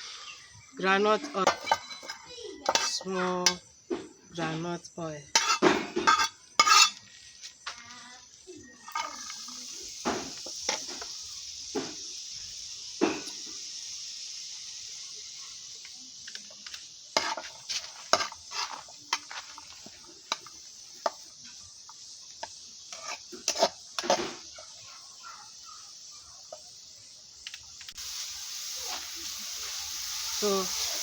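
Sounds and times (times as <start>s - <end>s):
vegetables sizzling in oil: 0.0s - 31.0s
spoon scraping cooking pot: 1.2s - 3.6s, 5.3s - 7.1s, 16.3s - 21.3s, 22.3s - 24.7s.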